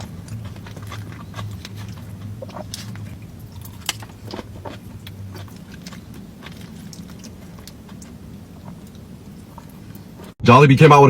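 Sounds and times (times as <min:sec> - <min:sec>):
crunchy chewing: 0:00.0 - 0:10.4
low steady hum: 0:00.0 - 0:10.9.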